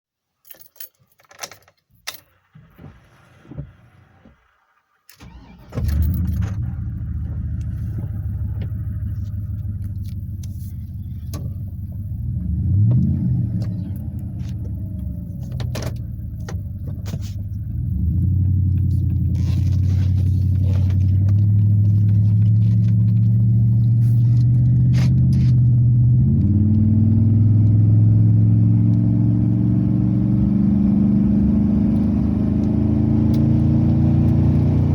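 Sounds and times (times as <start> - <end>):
truck engine idling: 5.2 - 12.9.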